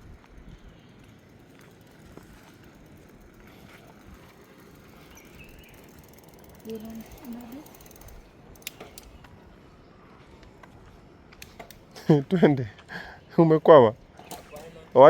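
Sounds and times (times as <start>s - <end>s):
bicycle freewheel ratcheting: 0.0s - 9.2s
sharp clicks: 7.9s - 9.4s.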